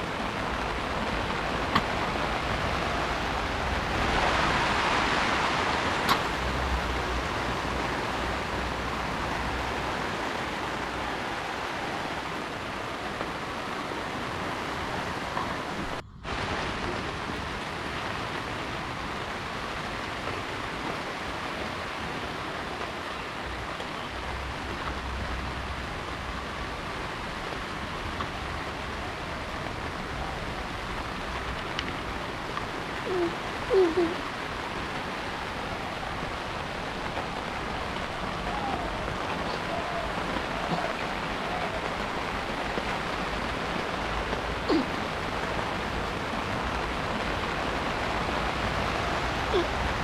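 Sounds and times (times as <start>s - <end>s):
heavy rain: 0.0s - 50.0s.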